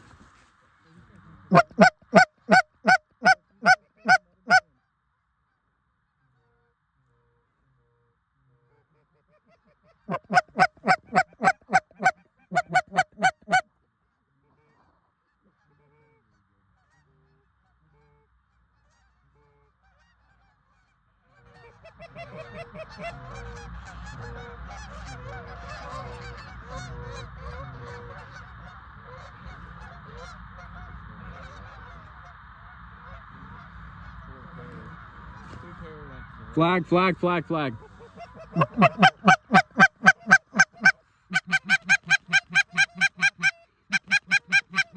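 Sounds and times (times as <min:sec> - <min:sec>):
flock of geese honking: 0:01.5 - 0:04.6, 0:10.1 - 0:13.6, 0:19.9 - 0:44.9
geese honking: 0:01.5 - 0:04.6, 0:10.1 - 0:13.6, 0:22.0 - 0:32.3, 0:33.0 - 0:44.9.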